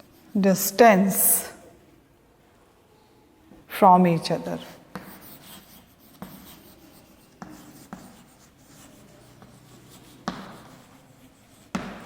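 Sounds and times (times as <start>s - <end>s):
writing by hand: 0.0s - 0.4s, 4.9s - 12.0s.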